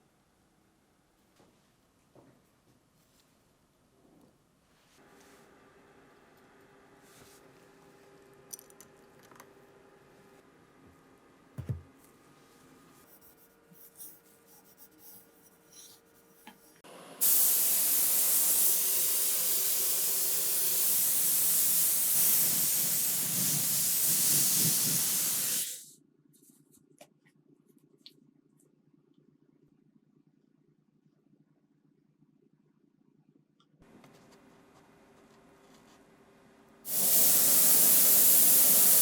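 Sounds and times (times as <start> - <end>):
loud spraying hiss: 17.2 - 25.8, 36.9 - 39.0.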